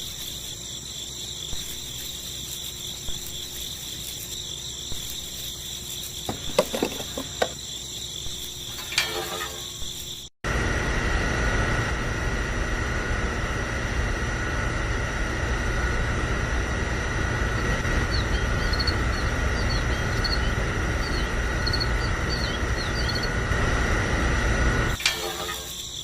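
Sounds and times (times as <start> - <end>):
small motor running with whine: 0.0 - 26.0.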